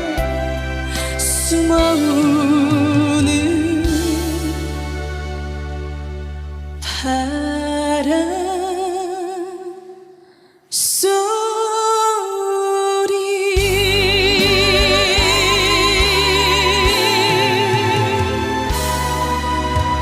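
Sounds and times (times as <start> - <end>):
woman singing a slow ballad: 0.0 - 5.0, 6.8 - 20.0
band accompaniment: 13.6 - 20.0.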